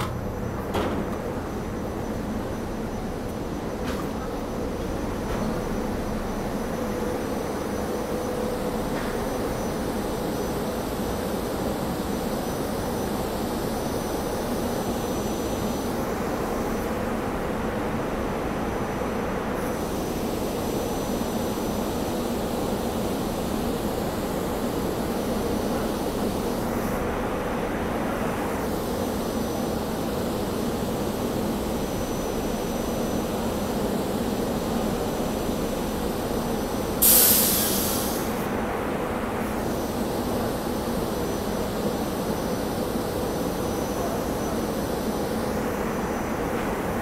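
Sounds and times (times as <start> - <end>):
railcar equipment hum with whine: 0.0 - 47.0
loud hiss of air: 19.4 - 47.0.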